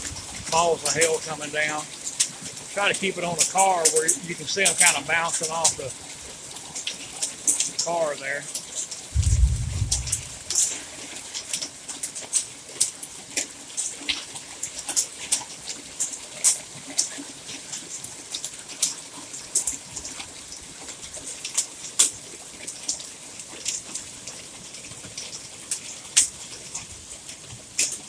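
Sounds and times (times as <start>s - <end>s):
hailstones ticking on roof and car: 0.0s - 9.1s
rain hiss: 0.0s - 28.0s.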